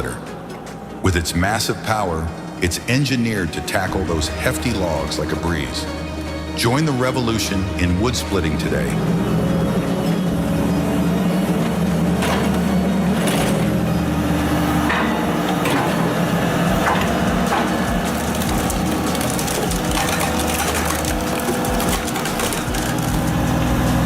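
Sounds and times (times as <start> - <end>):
wood splitter engine: 0.0 - 24.0
logs cracking and splintering: 2.6 - 24.0.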